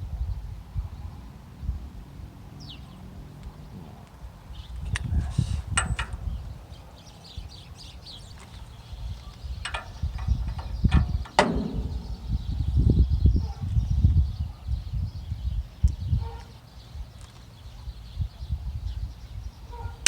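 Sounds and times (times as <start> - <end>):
metal tools clinking and knocking: 5.8 - 6.2, 9.7 - 12.6
sharp clicks: 9.7 - 12.6
low rumble: 9.7 - 13.4.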